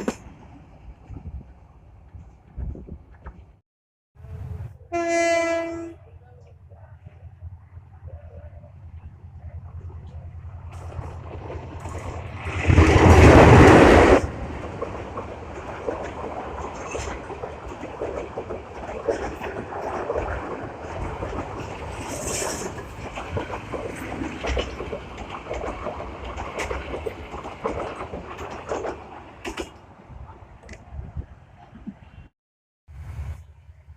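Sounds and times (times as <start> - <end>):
train rumbling on rails: 0.0 - 3.6, 4.2 - 32.3, 32.9 - 33.9
wheels clicking over track: 10.0 - 29.8.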